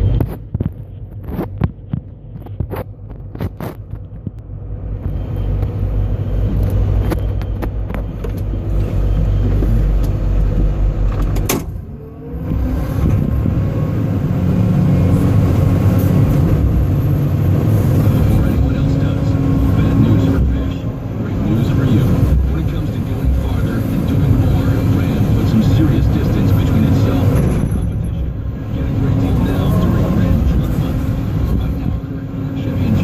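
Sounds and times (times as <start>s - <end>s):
excavator diesel engine droning: 2.1s - 33.0s
sharp clicks and knocks: 11.1s - 11.8s.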